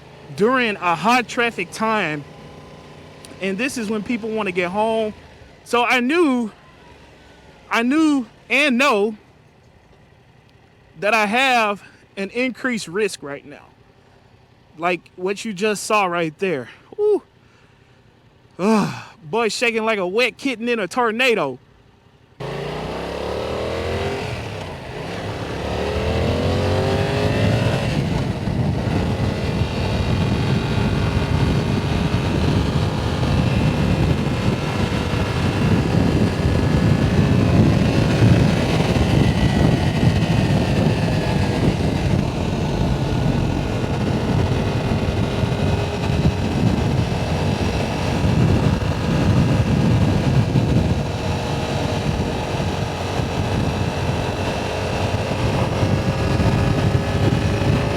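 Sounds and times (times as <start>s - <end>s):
motorcycle engine accelerating: 0.0s - 9.3s, 22.3s - 57.9s
heavy wind noise: 23.7s - 57.9s.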